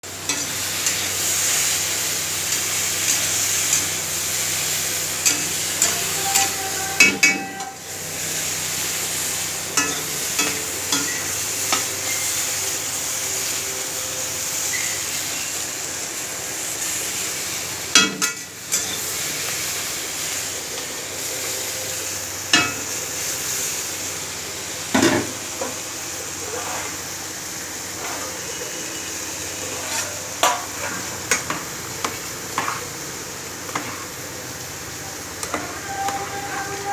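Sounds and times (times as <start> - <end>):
food sizzling in a pan: 0.1 - 36.9
spatula scraping a pan: 2.5 - 8.7, 26.4 - 27.2, 27.9 - 29.0, 29.6 - 31.2, 32.5 - 32.9, 33.7 - 34.2, 35.4 - 36.9.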